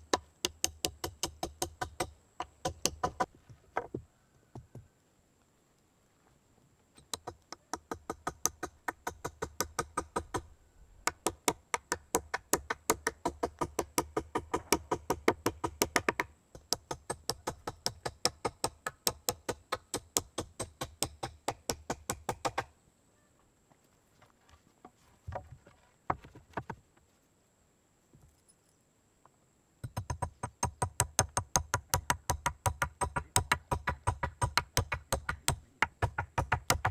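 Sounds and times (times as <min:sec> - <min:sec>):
rapid sharp knocks: 0:30.7 - 0:36.9.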